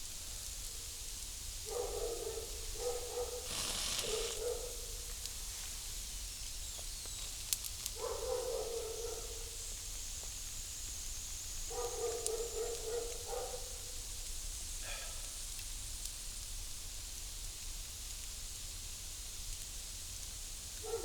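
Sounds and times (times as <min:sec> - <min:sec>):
animal calling: 0:02.8 - 0:04.8
short hiss: 0:03.3 - 0:04.8.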